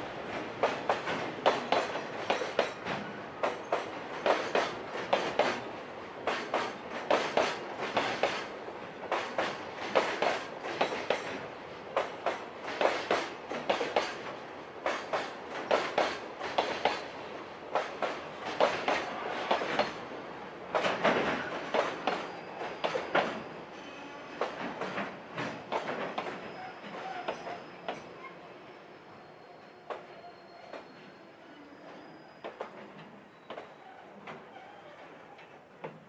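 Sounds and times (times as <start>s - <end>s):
train wheels clacking over rail joints: 0.4s - 17.1s, 17.7s - 20.0s, 20.7s - 23.4s, 24.4s - 28.0s.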